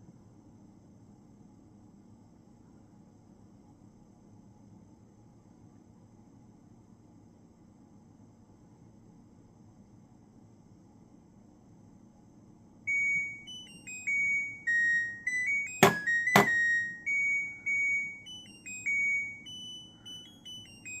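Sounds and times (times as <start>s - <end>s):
washing machine beeping melody: 12.9s - 21.0s.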